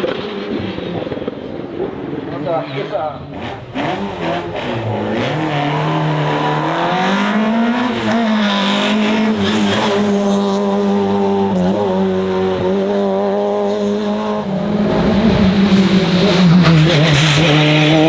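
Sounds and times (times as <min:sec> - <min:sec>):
race car engine at high revs: 0:00.0 - 0:18.0.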